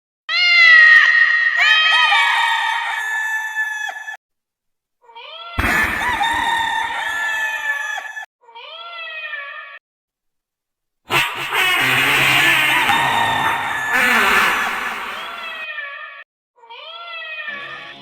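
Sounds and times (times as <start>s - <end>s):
long animal calls: 5.6s - 8.2s, 11.1s - 16.0s.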